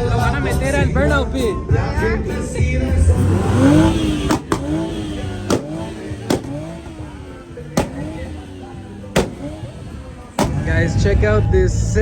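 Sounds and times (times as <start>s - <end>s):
truck engine revving: 0.0s - 12.0s
exhaust pops: 3.1s - 11.4s.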